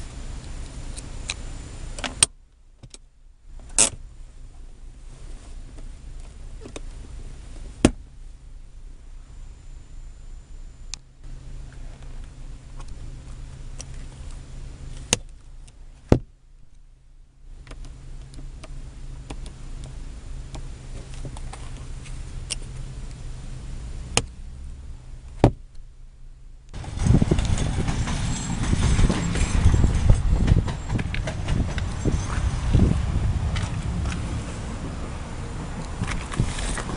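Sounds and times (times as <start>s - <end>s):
low steady hum: 0.0s - 36.9s
car interior parts clicking: 0.9s - 4.0s, 5.7s - 8.2s, 11.7s - 16.8s, 17.6s - 23.2s, 24.0s - 24.4s, 25.2s - 25.9s, 30.0s - 32.5s.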